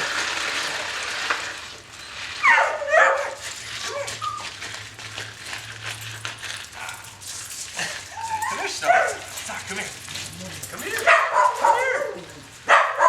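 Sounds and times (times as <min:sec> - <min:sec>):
dog whining: 0:02.4 - 0:04.5, 0:07.8 - 0:09.4, 0:10.2 - 0:12.5
dogs barking and yelping: 0:02.4 - 0:04.8, 0:05.9 - 0:13.0.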